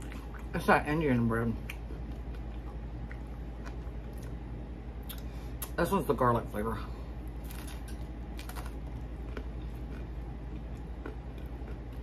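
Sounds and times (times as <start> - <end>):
person chewing food: 0.0 - 0.5, 1.6 - 4.4, 7.2 - 12.0
steady low hum: 0.0 - 12.0.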